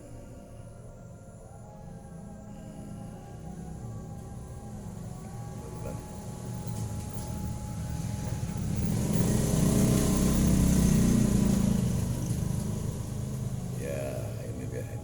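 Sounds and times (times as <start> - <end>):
vehicle engine passing by: 3.3 - 15.0.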